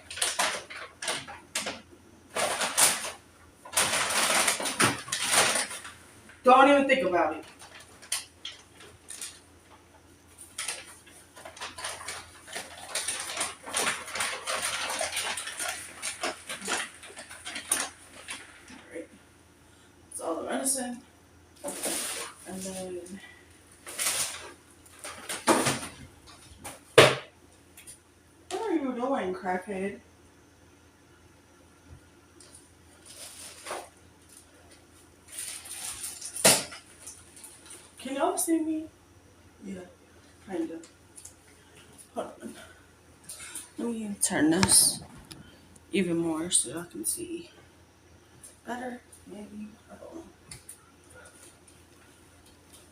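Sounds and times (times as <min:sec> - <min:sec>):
small containers clicking and rattling: 0:00.0 - 0:06.0, 0:10.5 - 0:18.6
household items rustling and clattering: 0:00.0 - 0:19.1, 0:21.6 - 0:27.2, 0:32.4 - 0:38.2, 0:40.3 - 0:46.8.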